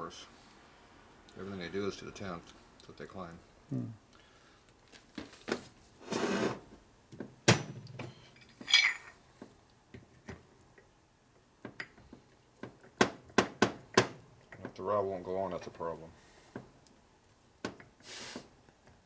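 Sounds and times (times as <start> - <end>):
metal jingle: 8.4 - 9.2
metal parts clinking: 8.4 - 9.2.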